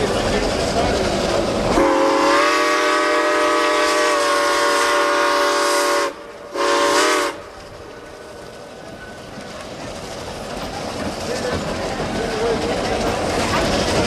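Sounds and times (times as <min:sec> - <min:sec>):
train running noise: 0:00.0 - 0:14.0
steam locomotive whistle: 0:01.8 - 0:07.5.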